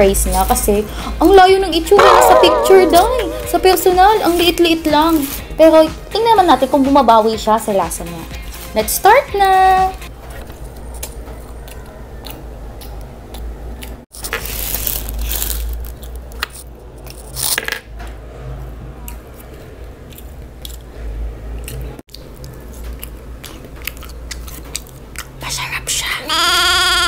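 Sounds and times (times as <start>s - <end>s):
chewing and crunching fries: 10.2s - 17.6s, 18.6s - 25.8s
wet mouth sounds: 21.5s - 26.2s.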